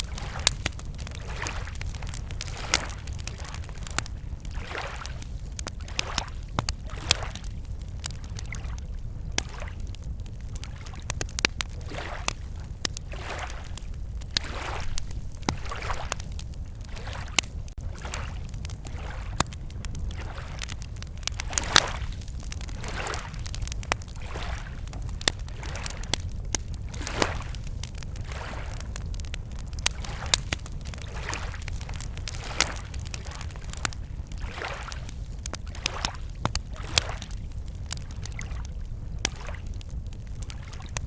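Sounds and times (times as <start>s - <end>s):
waves lapping at shore: 0.0s - 7.5s, 11.7s - 19.5s, 20.1s - 26.3s, 26.9s - 28.9s, 29.9s - 38.6s
campfire crackling: 0.0s - 41.0s.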